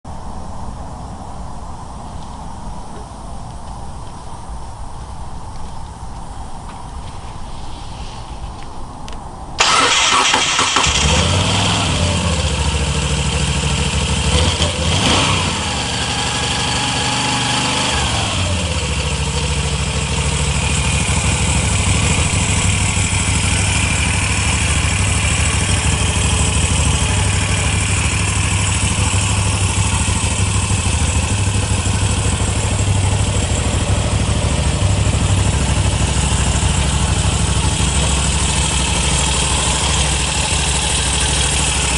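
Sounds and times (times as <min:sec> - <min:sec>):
starter motor cranking: 0:09.6 - 0:11.3
motorcycle engine revving: 0:09.6 - 0:41.9
motorcycle engine starting: 0:09.6 - 0:41.9
motorcycle engine idling: 0:10.8 - 0:41.9.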